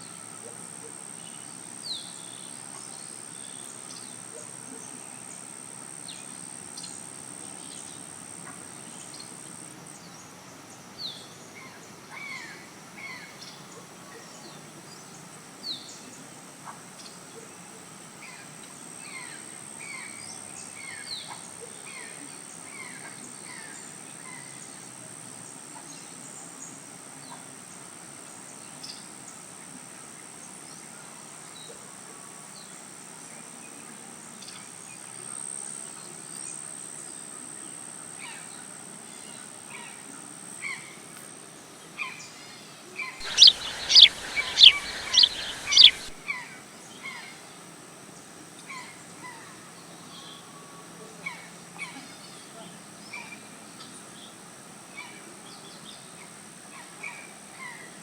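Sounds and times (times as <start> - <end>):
birds chirping: 43.2 - 46.2
steady high-pitched whine: 43.2 - 46.2.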